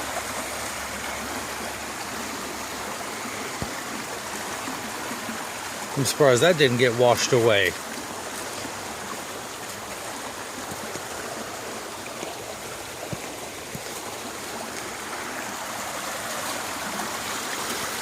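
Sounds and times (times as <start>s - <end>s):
creek running: 0.0s - 18.0s.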